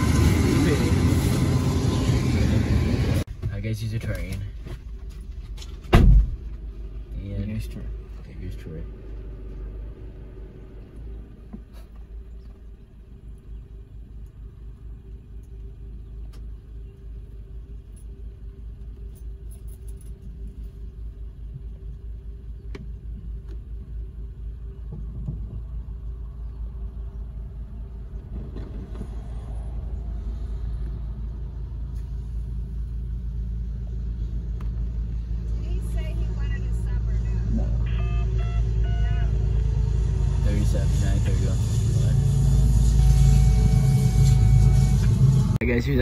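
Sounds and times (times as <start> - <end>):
diesel locomotives rumbling: 0.0 - 46.0.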